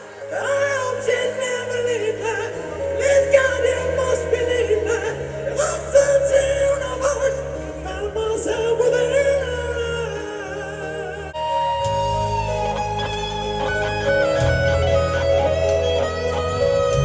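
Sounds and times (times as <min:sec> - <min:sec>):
live rock band music: 0:00.0 - 0:17.0
sustained bass notes: 0:00.0 - 0:17.0
wavering lead melody: 0:00.0 - 0:17.0.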